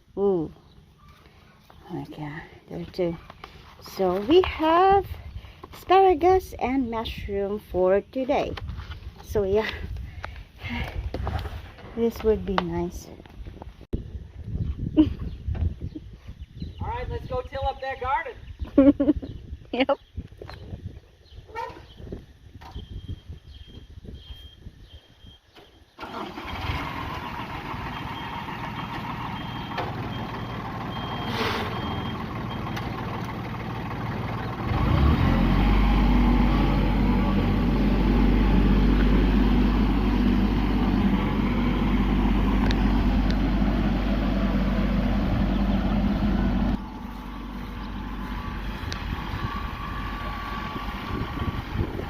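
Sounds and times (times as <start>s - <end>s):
garden tiller engine running: 26.0s - 52.0s.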